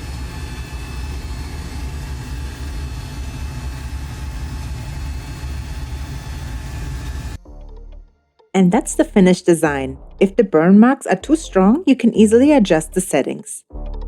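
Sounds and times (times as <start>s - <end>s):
low machine hum: 0.0s - 7.4s.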